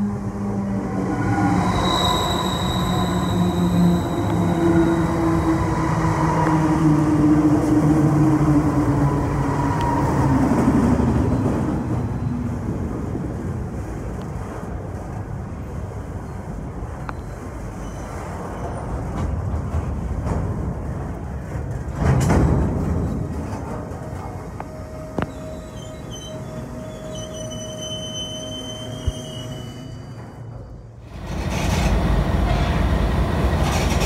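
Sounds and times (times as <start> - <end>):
rumble of rolling wagons: 10.8 - 27.9.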